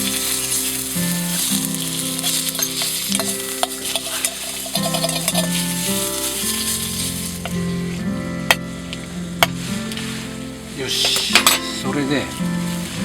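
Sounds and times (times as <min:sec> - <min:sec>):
utensil clicking and scraping: 0:00.0 - 0:10.1
food sizzling in a pan: 0:00.0 - 0:13.0
soft background music: 0:00.0 - 0:13.0.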